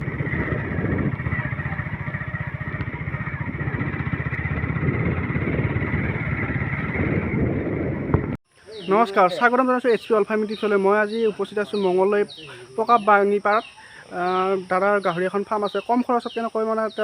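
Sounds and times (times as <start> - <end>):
engine running with rapid pulse: 0.0 - 8.4.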